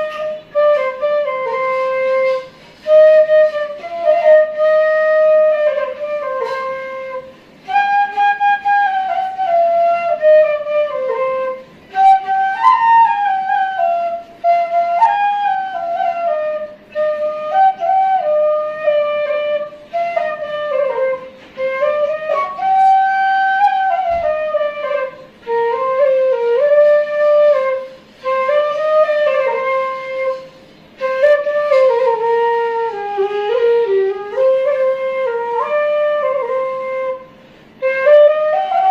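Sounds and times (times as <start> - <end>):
solo flute slow melody: 0.0 - 38.9.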